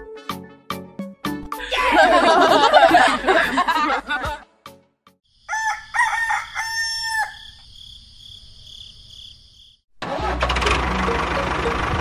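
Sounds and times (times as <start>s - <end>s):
rooster crowing: 5.4s - 7.6s
engine running with fast knock: 10.0s - 12.0s.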